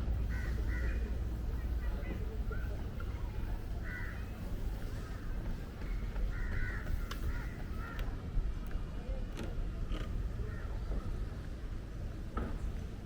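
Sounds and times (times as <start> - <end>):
crows cawing: 0.3 - 1.1, 3.8 - 4.3, 5.9 - 8.0.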